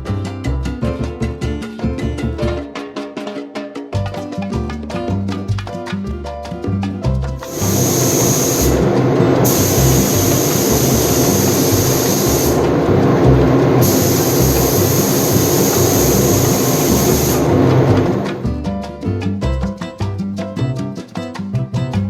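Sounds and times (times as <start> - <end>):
power tool grinding: 7.5 - 18.4
power tool whine: 7.5 - 18.4.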